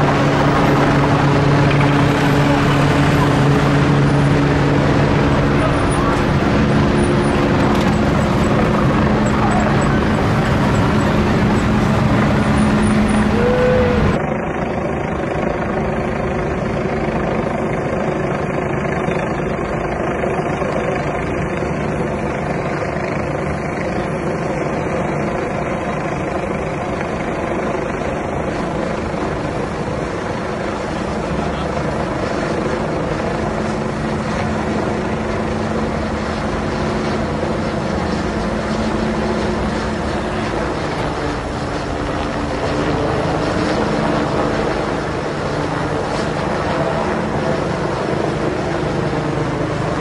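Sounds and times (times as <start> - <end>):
road traffic: 0.0 - 14.3, 21.2 - 50.0
helicopter rotor and engine: 0.0 - 50.0.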